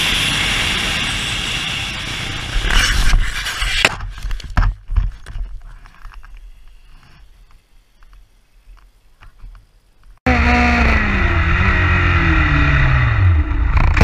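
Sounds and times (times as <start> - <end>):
motorcycle running at speed: 10.3 - 14.0.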